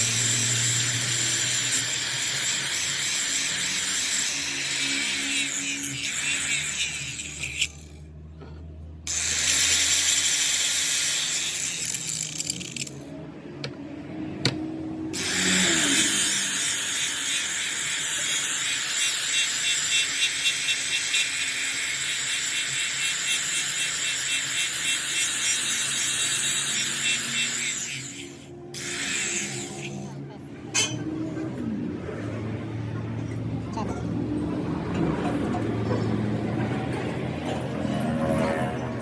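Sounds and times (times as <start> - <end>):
power tool working metal: 0.0 - 8.0, 9.1 - 13.0, 15.2 - 31.4.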